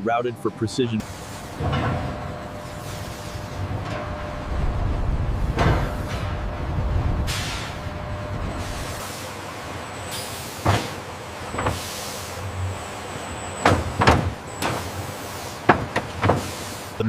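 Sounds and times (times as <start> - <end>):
machinery humming: 0.0 - 17.0
heavy blocks knocking: 13.6 - 14.8, 15.7 - 16.5.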